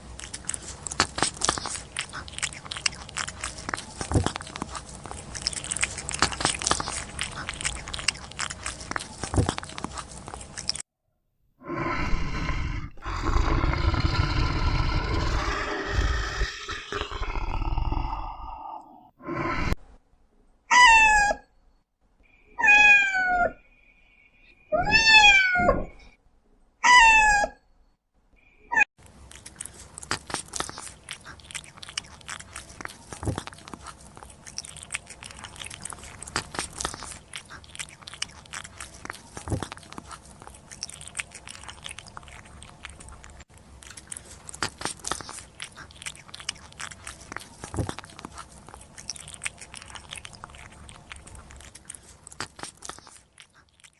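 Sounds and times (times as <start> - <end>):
cat chewing crunchy food: 0.0 - 10.8, 29.0 - 53.9
cat meowing: 20.7 - 21.4, 22.6 - 23.6, 24.7 - 25.9, 26.8 - 27.6.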